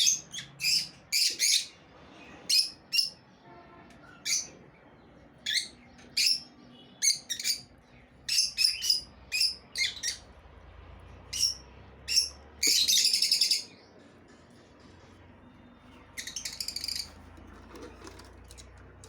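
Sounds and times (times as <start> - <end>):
high-pitched bird chirps: 0.0 - 1.8, 5.4 - 10.3, 11.3 - 13.9, 15.8 - 17.2
rapid bird chattering: 16.2 - 17.2.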